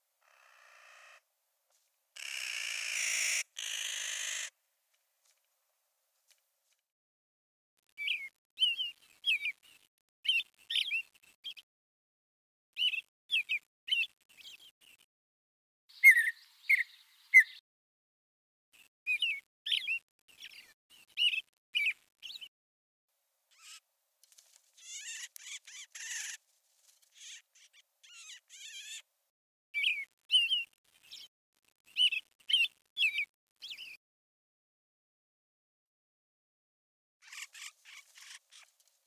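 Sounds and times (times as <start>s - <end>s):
small birds chirping: 2.2s - 4.5s, 7.8s - 11.7s, 12.7s - 15.1s, 15.9s - 17.6s, 18.8s - 22.5s, 23.5s - 29.1s, 29.8s - 34.0s, 37.2s - 39.0s.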